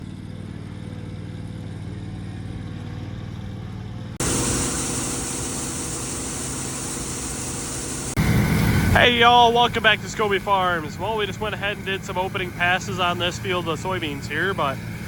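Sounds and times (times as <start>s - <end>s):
combine diesel engine running: 2.6s - 15.0s
strong high hiss: 4.2s - 10.9s.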